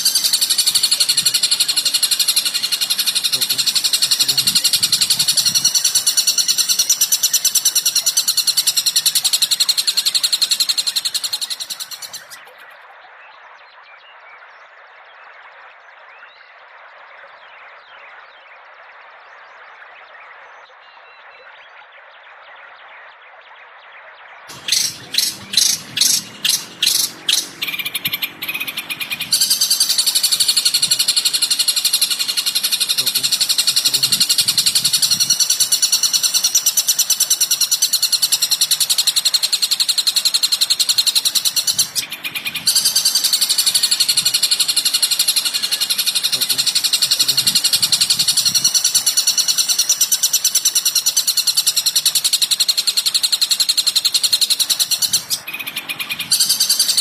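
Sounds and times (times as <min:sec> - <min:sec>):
songbird chattering: 0:00.0 - 0:12.8, 0:24.5 - 0:57.0.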